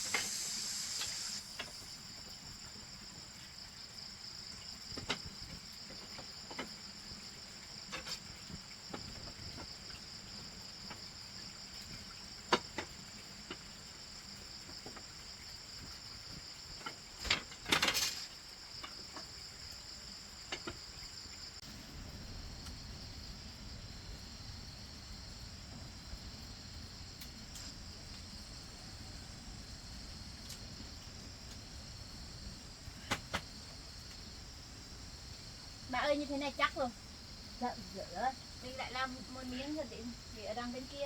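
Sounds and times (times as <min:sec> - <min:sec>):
insects buzzing: 0:00.0 - 0:41.0
sharp knocks and clatter: 0:04.9 - 0:06.8, 0:16.8 - 0:19.3, 0:33.0 - 0:33.5.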